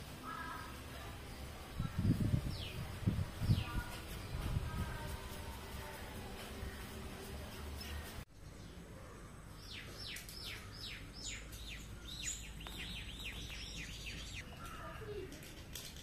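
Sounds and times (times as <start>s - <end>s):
bird singing: 7.8s - 15.3s.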